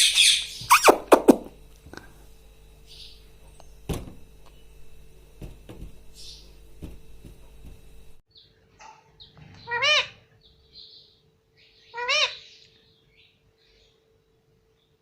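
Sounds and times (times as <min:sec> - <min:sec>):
parrot chirping and calling: 0:00.0 - 0:01.4, 0:09.6 - 0:11.0, 0:11.8 - 0:12.6.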